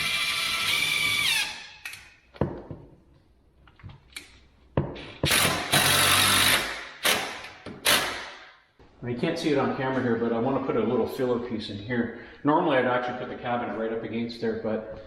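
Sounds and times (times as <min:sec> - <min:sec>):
power drill driving screws: 0:00.0 - 0:01.6, 0:05.2 - 0:08.3.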